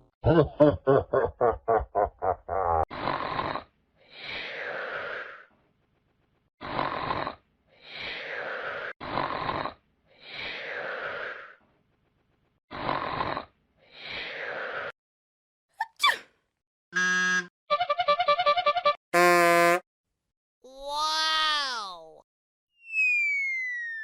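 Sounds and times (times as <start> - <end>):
cartoon snoring: 2.8 - 3.7, 6.6 - 7.4, 8.6 - 10.4, 12.7 - 13.6.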